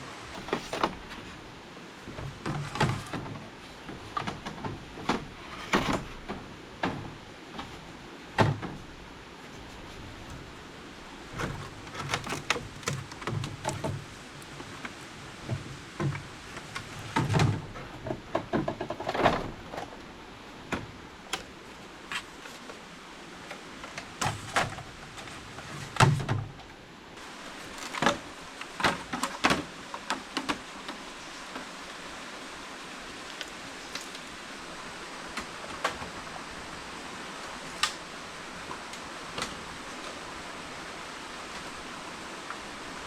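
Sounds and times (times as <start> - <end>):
steady background hiss: 0.0 - 43.0.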